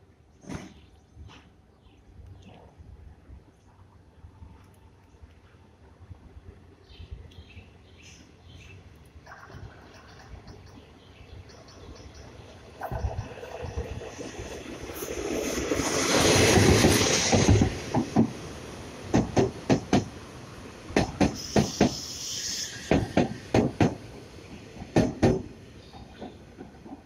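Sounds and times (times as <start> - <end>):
locomotive rushing past: 9.4 - 27.0.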